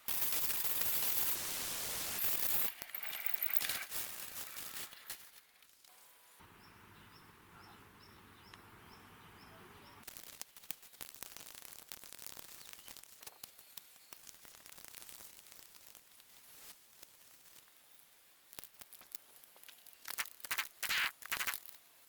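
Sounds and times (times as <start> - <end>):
faint clicks and crackles: 2.1 - 6.2, 10.0 - 22.0
bird chirping: 6.4 - 10.0.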